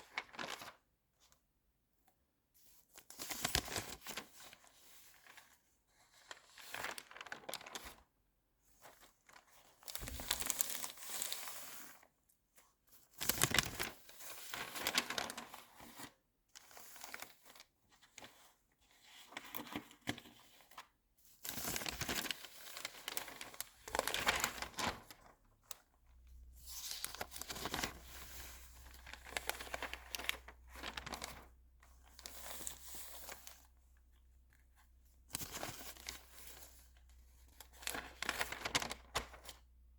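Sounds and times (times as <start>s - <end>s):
magazine pages rustling: 0.0s - 0.8s, 6.1s - 8.0s, 8.8s - 12.0s, 13.2s - 16.1s, 21.4s - 33.8s, 35.2s - 39.7s.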